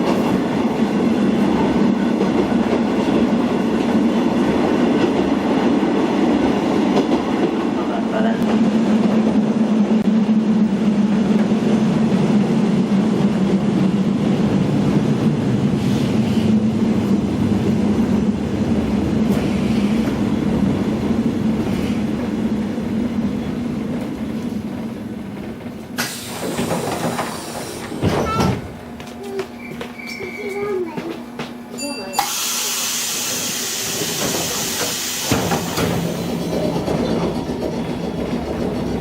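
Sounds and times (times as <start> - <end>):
train running on rails: 0.0 - 39.0
air hiss: 32.2 - 35.8.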